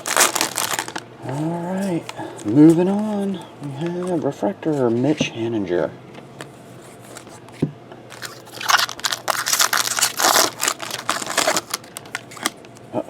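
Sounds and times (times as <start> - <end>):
foil wrapper crinkling and tearing: 0.0 - 3.4, 8.1 - 12.6.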